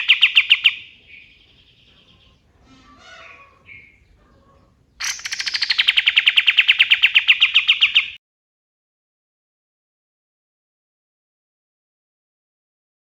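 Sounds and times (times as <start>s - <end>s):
songbird singing: 0.0s - 8.2s.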